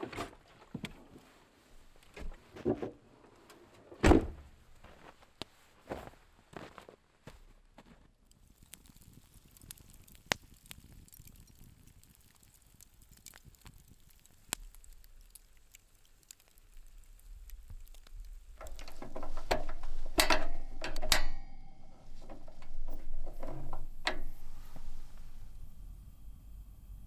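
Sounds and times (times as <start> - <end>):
rustling: 12.0 - 25.8
mechanical clicks and clattering: 18.6 - 25.6.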